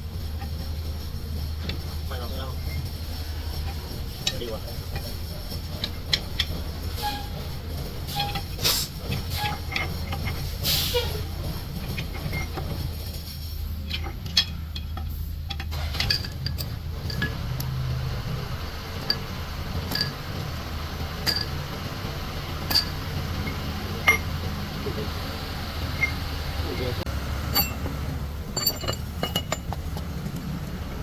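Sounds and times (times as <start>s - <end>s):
metal tools clinking and knocking: 1.6s - 17.8s, 19.0s - 20.5s, 21.1s - 21.9s, 22.6s - 24.5s, 26.0s - 26.9s, 27.5s - 30.1s.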